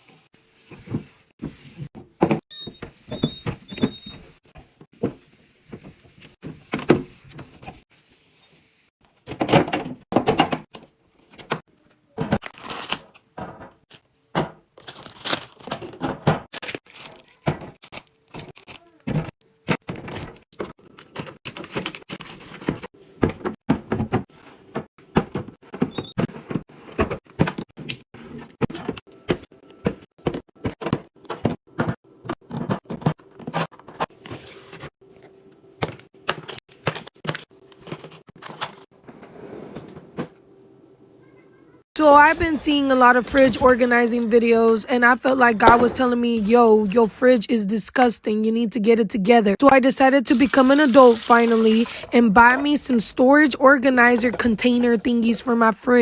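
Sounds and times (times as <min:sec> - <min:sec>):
drawers sliding: 0:37.8 - 0:40.4.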